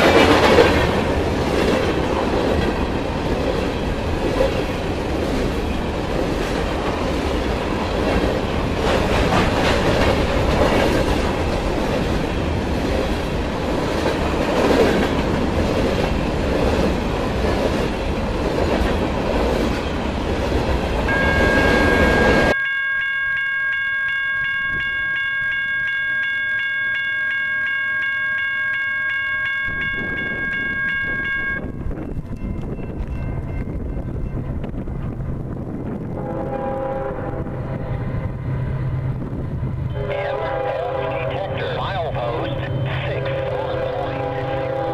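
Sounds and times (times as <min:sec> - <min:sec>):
wheels clicking over rail joints: 0:00.0 - 0:21.2
train rumbling past: 0:00.0 - 0:22.6, 0:29.7 - 0:44.9
steady high multi-pitch tone: 0:21.1 - 0:31.8.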